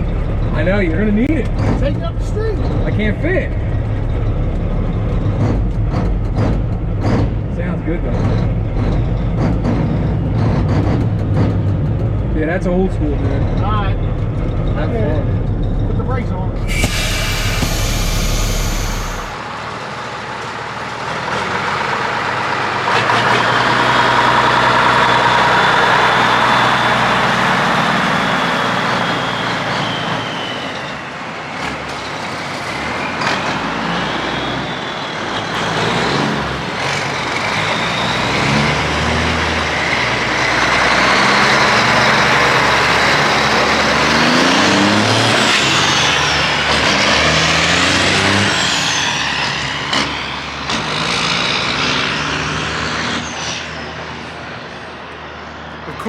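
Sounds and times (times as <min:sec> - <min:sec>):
diesel truck engine revving: 0:00.0 - 0:56.0.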